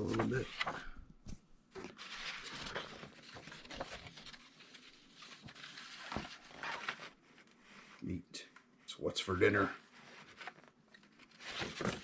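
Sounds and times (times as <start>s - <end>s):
paper and packaging rustling: 0.0s - 1.0s, 1.8s - 7.5s, 9.5s - 12.0s.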